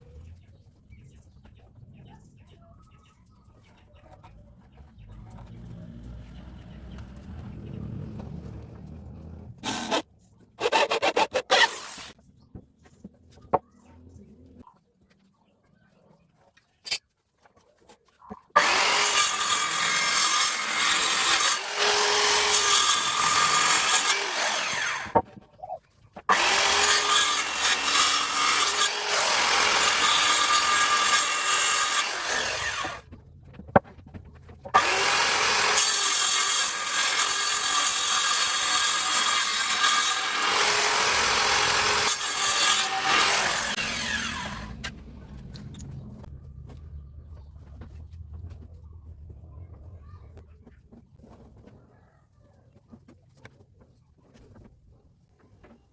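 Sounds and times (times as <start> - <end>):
power tool cutting wood: 5.6 - 12.2, 18.6 - 25.2, 26.3 - 33.0, 34.8 - 46.3.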